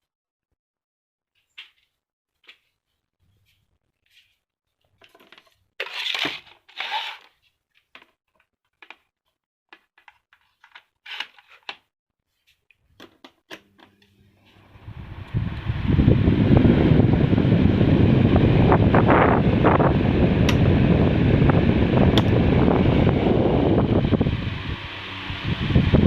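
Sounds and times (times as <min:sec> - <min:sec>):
rustling handling noises: 0:01.7 - 0:14.6
crinkling scrapes: 0:02.5 - 0:08.0, 0:10.0 - 0:12.7
fan air rushing: 0:14.4 - 0:26.0
table fan motor humming: 0:14.4 - 0:26.0.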